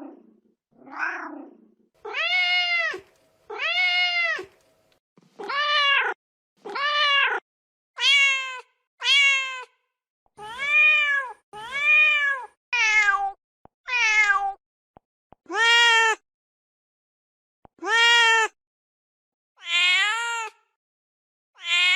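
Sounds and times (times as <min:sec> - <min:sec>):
cat meowing: 0:02.0 - 0:04.5, 0:05.4 - 0:07.4, 0:08.0 - 0:09.8, 0:10.4 - 0:14.6, 0:19.6 - 0:20.6, 0:21.6 - 0:21.9.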